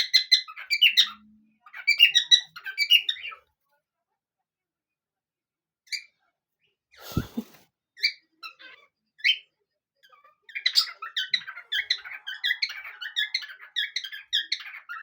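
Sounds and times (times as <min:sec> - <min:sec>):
parrots chirping and squeaking: 0:00.0 - 0:03.4, 0:05.9 - 0:06.2, 0:07.2 - 0:15.0.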